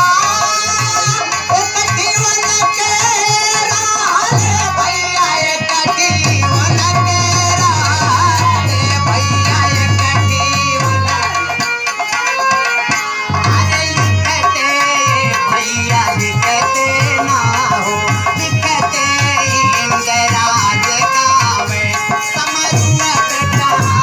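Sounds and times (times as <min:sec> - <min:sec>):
hand drum beating: 0:00.8 - 0:12.6.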